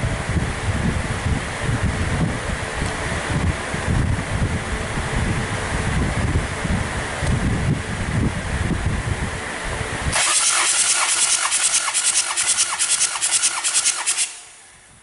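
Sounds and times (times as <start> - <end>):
wind buffeting microphone: 0.0 - 10.2
starter motor cranking engine: 10.1 - 14.6.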